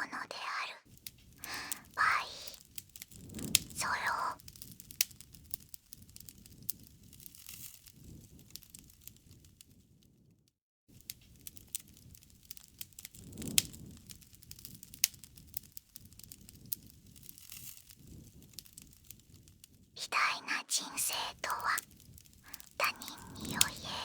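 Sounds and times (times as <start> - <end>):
bonfire crackling: 0.0 - 10.0, 10.9 - 24.0
low fire rumble: 0.9 - 10.2, 10.9 - 20.0, 21.3 - 24.0.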